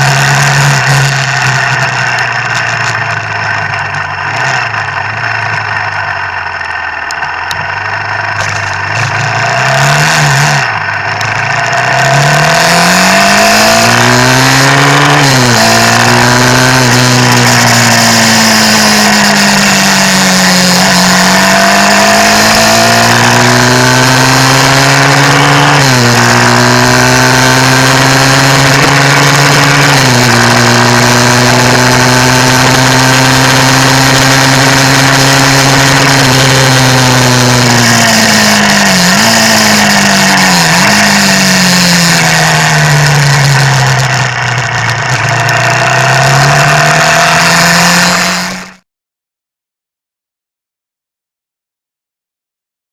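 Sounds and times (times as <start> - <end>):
wet road noise: 0.0 - 15.1, 38.4 - 48.8
motorcycle engine revving: 0.0 - 48.8.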